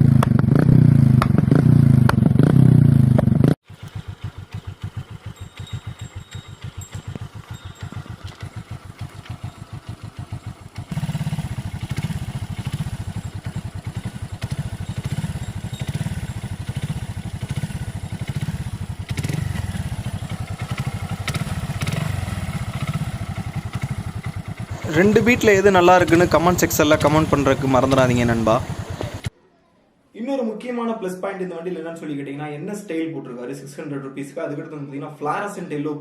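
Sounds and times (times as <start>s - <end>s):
motorcycle engine idling: 0.0s - 29.3s.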